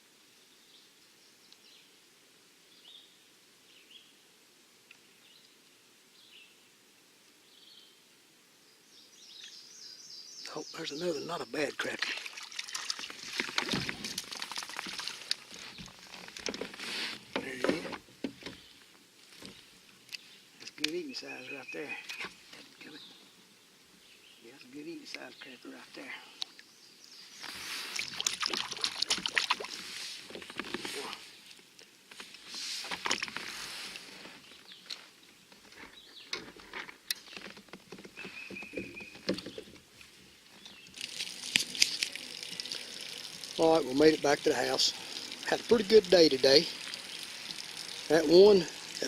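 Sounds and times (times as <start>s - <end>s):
hiss-like rustle: 12.1s - 21.4s, 22.0s - 37.6s
handling taps clicks and rustles: 12.9s - 18.6s.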